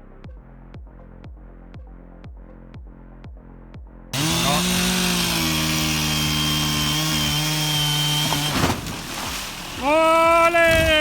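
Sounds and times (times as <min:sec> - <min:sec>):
chainsaw running at high revs: 0:04.2 - 0:08.6.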